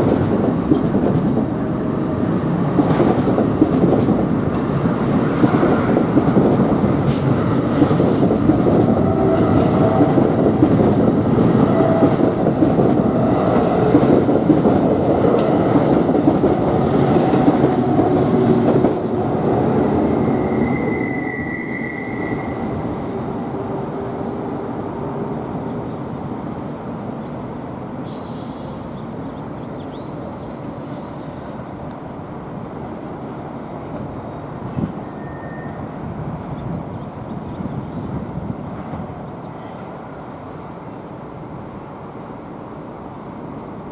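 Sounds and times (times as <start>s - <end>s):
train wheels rumbling on rail: 0.0s - 43.9s
wheel squeal: 19.0s - 23.1s, 34.2s - 39.9s.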